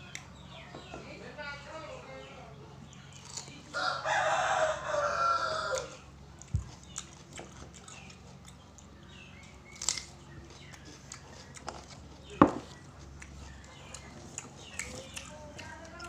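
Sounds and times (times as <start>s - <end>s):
rooster crowing: 3.7s - 6.1s.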